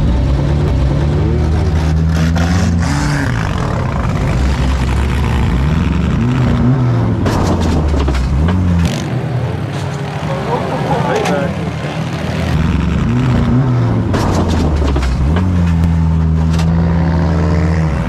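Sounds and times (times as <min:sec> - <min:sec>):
car engines revving: 0:00.0 - 0:18.0
cars crashing: 0:06.4 - 0:09.0, 0:09.6 - 0:16.8.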